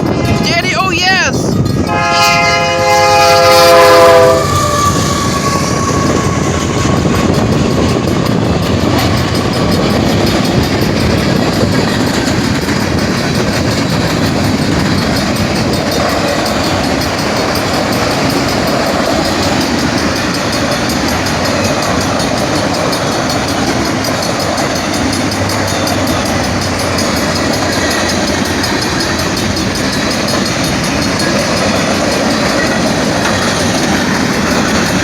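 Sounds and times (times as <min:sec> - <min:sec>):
railcars rumbling on rails: 0:00.0 - 0:35.0
locomotive horn blast: 0:01.8 - 0:06.4.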